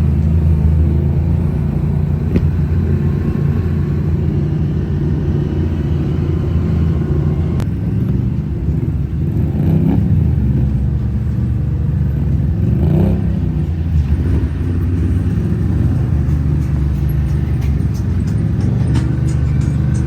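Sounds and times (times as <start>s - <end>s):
vehicle engine at low revs: 0.0s - 20.0s.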